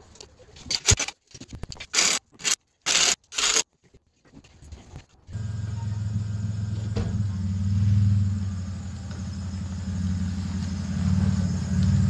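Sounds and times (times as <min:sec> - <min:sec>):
engine droning: 0:05.4 - 0:12.0.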